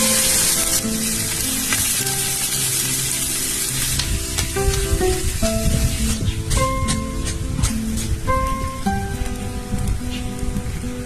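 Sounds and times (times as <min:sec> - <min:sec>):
background music: 0:00.0 - 0:11.0
food sizzling in a pan: 0:00.0 - 0:11.0.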